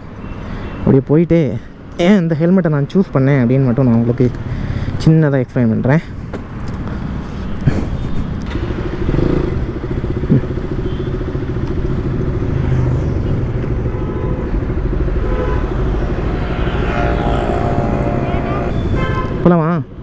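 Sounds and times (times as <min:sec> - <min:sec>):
motorcycle engine idling: 0:08.6 - 0:12.5.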